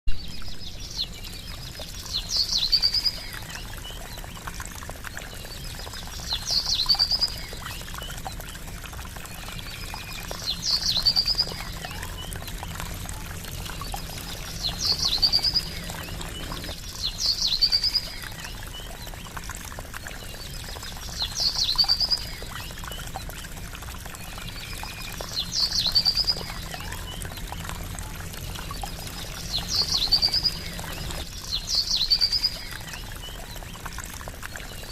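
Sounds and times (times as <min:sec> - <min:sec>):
trickling water: 0:00.1 - 0:34.9
bird chirping: 0:13.9 - 0:18.5, 0:28.9 - 0:32.8.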